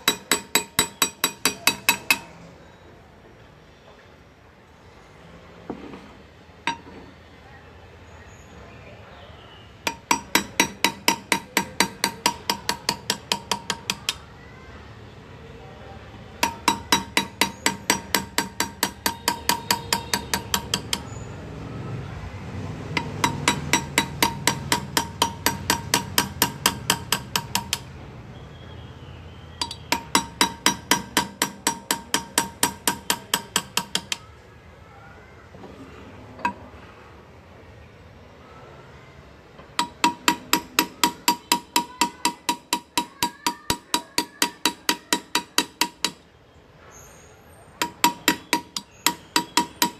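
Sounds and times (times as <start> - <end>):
hammer tapping graver into metal: 0.0 - 2.3, 6.7 - 7.1, 9.8 - 14.2, 16.4 - 21.2, 22.9 - 27.9, 29.6 - 34.3, 39.8 - 46.2, 47.8 - 49.9.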